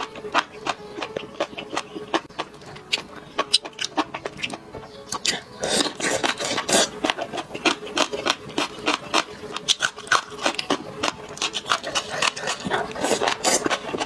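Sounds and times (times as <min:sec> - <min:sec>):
crunchy chewing: 0:00.0 - 0:14.0
wet slurp: 0:05.2 - 0:14.0.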